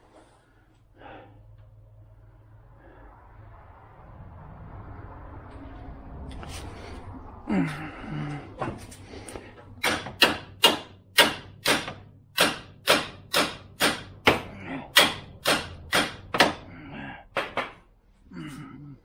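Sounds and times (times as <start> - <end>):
hammer striking metal suspension: 9.8 - 16.7.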